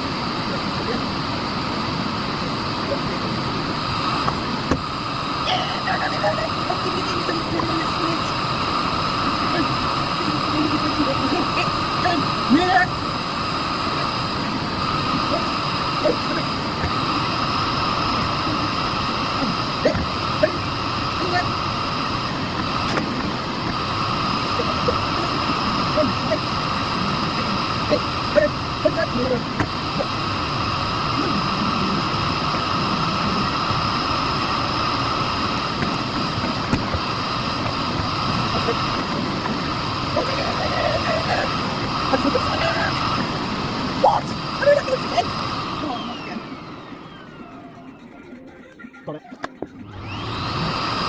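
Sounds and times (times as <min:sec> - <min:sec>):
vacuum cleaner running: 0:00.0 - 0:51.0.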